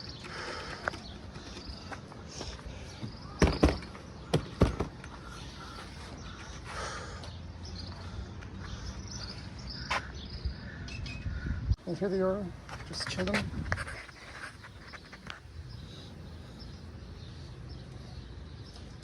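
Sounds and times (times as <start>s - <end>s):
sharp knocks and thumps: 3.0s - 5.0s.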